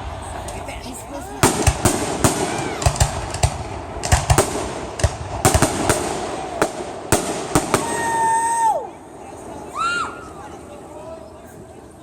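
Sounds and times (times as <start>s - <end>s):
fireworks bangs: 0.0s - 10.7s
fireworks crackling: 0.0s - 12.0s.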